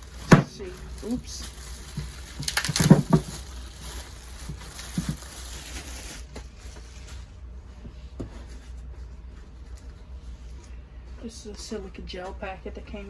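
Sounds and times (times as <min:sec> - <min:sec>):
packaging rustling: 0:00.0 - 0:07.3.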